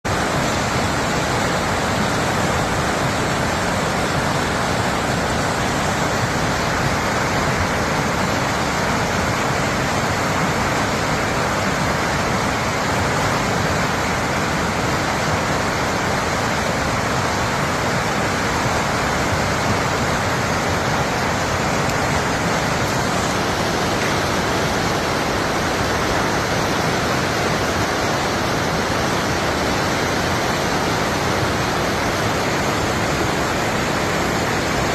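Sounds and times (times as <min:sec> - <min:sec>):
fast-flowing river water: 0:00.0 - 0:34.9.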